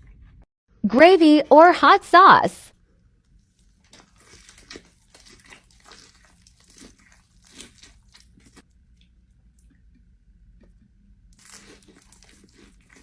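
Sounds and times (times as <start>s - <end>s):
person chewing crunchy food: 3.2s - 13.0s.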